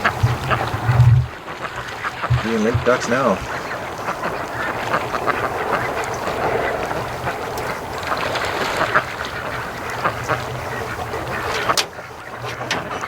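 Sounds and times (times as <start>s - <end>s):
ducks quacking: 0.0s - 13.0s.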